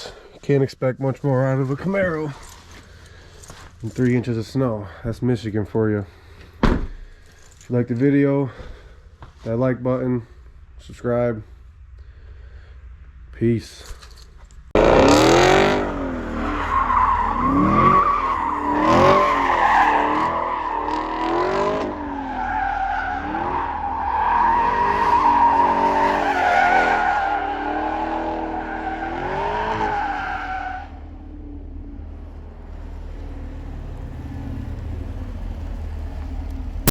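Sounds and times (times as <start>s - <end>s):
tyres spinning and squealing: 13.8s - 36.0s
car engine revving hard: 14.8s - 31.0s.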